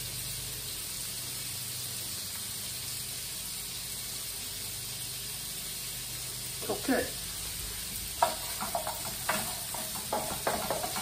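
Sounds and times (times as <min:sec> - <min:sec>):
food sizzling in a skillet: 0:00.0 - 0:11.0.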